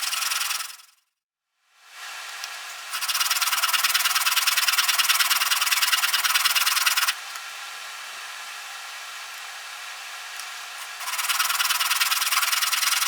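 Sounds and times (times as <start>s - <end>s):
steel blade rasping on abrasive: 2.9s - 7.2s, 10.8s - 13.0s.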